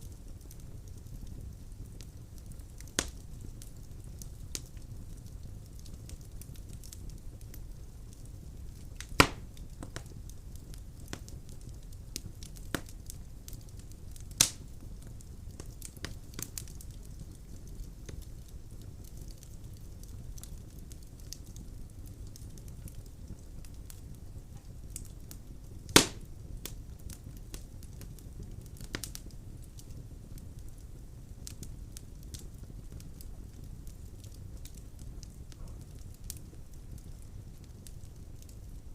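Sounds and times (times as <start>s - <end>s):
fire crackling: 0.0s - 38.9s
fire rumbling: 0.0s - 38.9s
logs popping: 9.0s - 10.0s, 25.9s - 26.3s.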